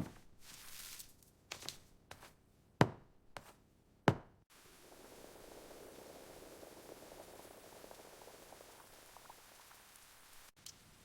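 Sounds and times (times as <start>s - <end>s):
steady hiss: 4.5s - 11.0s.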